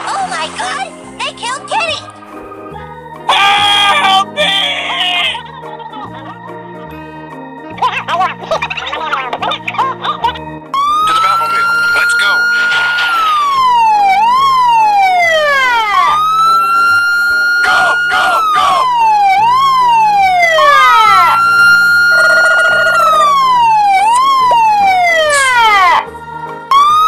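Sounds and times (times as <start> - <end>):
siren wailing: 3.3 - 4.4, 10.7 - 26.1, 26.7 - 27.0.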